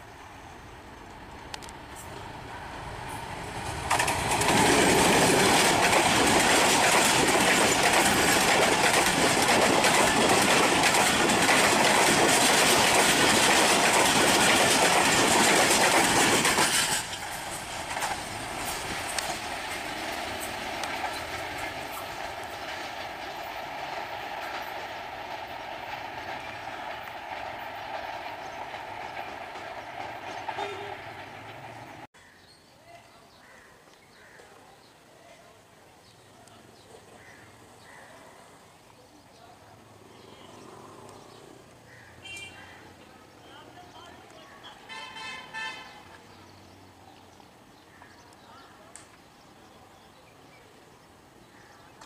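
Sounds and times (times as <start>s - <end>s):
diesel locomotive engine: 0.0s - 32.1s
distant train rumble: 0.0s - 32.1s
train wheels clickety-clack: 3.1s - 32.1s.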